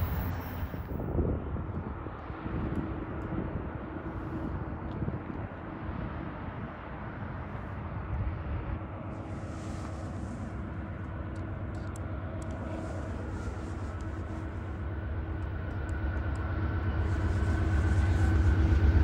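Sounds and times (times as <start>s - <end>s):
distant train rumbling: 0.0s - 1.0s, 5.8s - 19.0s.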